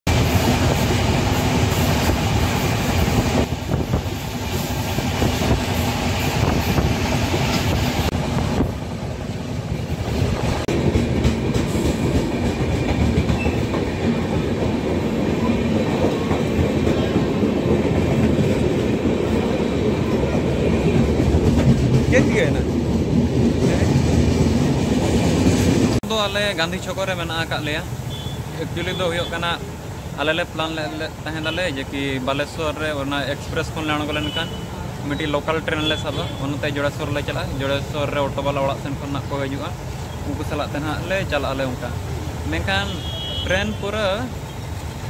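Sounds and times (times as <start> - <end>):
train wheels rumbling on rails: 0.1 - 43.1.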